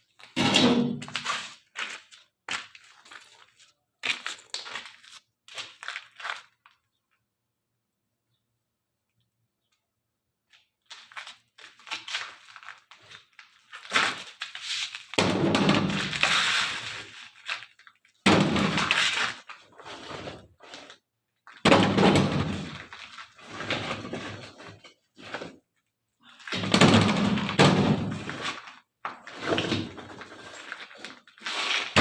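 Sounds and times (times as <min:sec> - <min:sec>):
rubble crashing and rattling: 0:15.2 - 0:16.8, 0:18.2 - 0:19.5, 0:21.4 - 0:24.6, 0:26.4 - 0:31.2.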